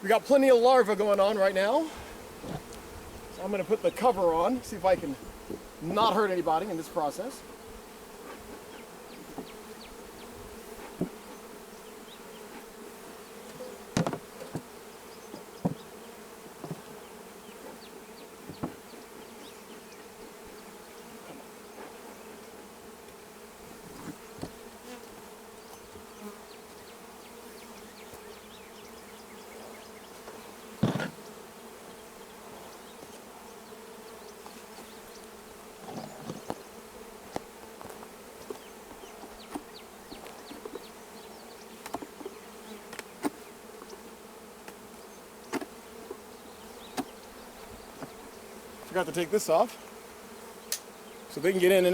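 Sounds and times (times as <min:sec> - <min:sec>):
honeybees buzzing: 0:00.0 - 0:51.9
knocks of wooden hive cover: 0:13.5 - 0:16.0, 0:16.6 - 0:17.0, 0:18.4 - 0:18.9, 0:30.3 - 0:31.3.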